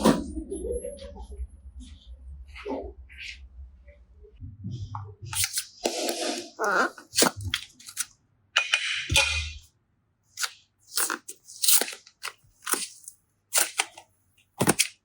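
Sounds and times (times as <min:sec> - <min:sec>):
sharp crunches of toys: 0:05.4 - 0:08.1, 0:10.4 - 0:14.0, 0:14.6 - 0:15.0
packaging rustling: 0:10.4 - 0:14.0, 0:14.6 - 0:15.0.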